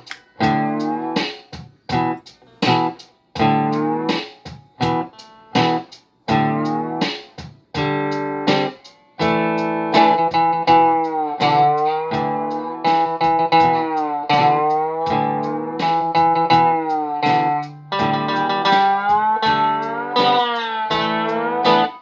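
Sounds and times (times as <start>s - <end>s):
electric slide guitar chords: 0.0s - 1.3s, 1.9s - 4.2s, 4.8s - 7.1s, 7.8s - 22.0s.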